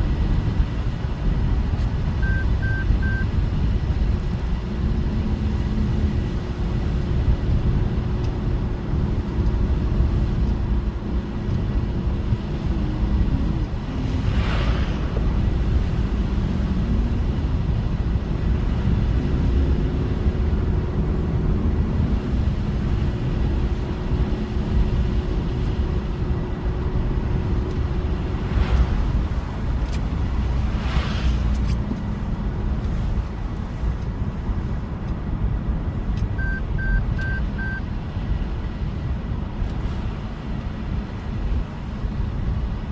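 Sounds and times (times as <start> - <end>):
car engine and road rumble: 0.0 - 42.9.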